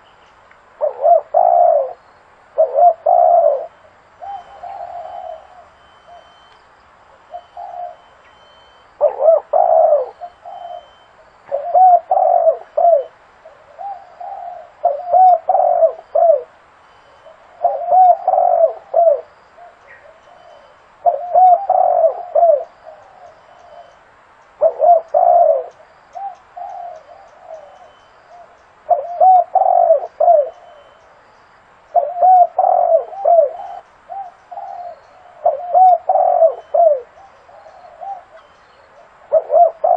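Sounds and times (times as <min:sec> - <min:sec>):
dove cooing: 0:00.8 - 0:06.5, 0:07.2 - 0:24.0, 0:24.6 - 0:31.1, 0:31.9 - 0:39.9.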